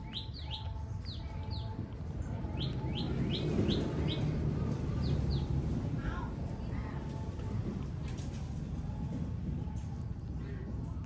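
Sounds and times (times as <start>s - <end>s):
bird chirping: 0.0s - 1.7s.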